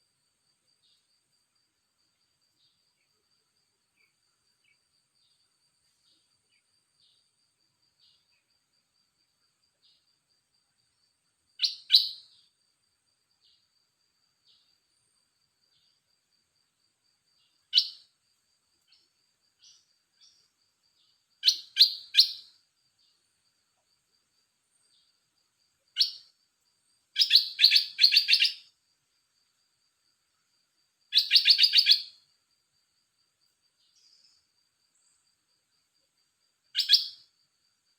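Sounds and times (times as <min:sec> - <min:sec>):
bird singing short phrases: 0:11.6 - 0:12.4, 0:21.4 - 0:22.5, 0:26.0 - 0:26.3, 0:27.2 - 0:28.7, 0:31.1 - 0:32.2, 0:36.8 - 0:37.2.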